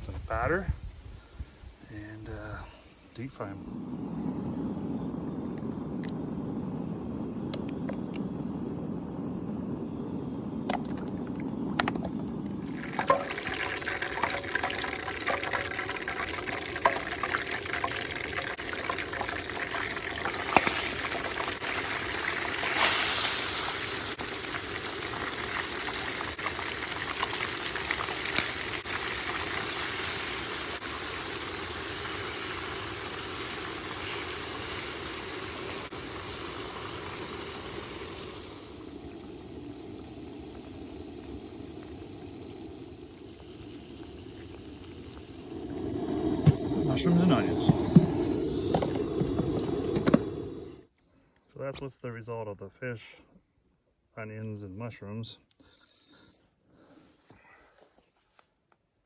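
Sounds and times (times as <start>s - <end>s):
oil popping and crackling: 3.8s - 50.8s
food deep-frying in hot oil: 10.2s - 48.0s.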